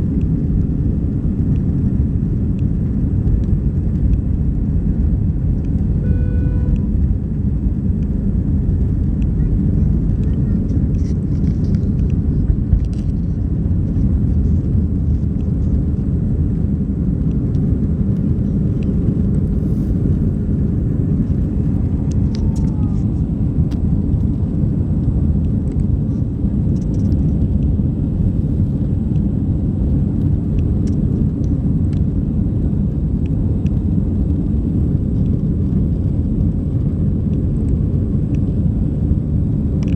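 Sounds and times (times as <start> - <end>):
jet engine cabin rumble: 0.0 - 39.9
short tone: 6.0 - 7.0.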